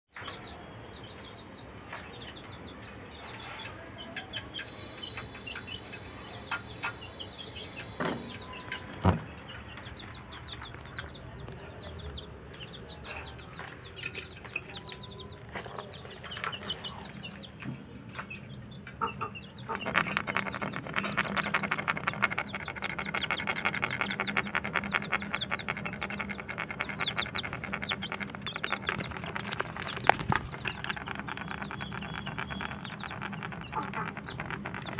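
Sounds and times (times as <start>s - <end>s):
budgies chattering and chirping: 0.2s - 34.9s.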